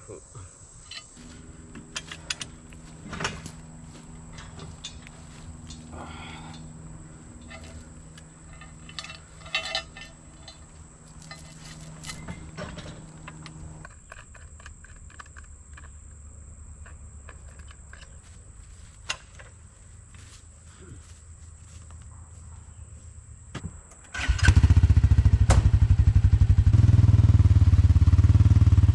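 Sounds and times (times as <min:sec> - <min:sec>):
metal clinks and knocks: 0:00.8 - 0:20.4
engine idling: 0:00.8 - 0:21.2.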